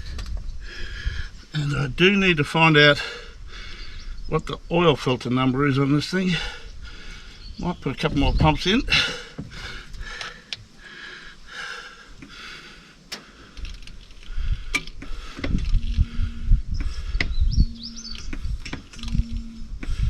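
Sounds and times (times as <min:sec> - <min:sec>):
bird chirping: 0:03.3 - 0:10.2, 0:15.1 - 0:20.0.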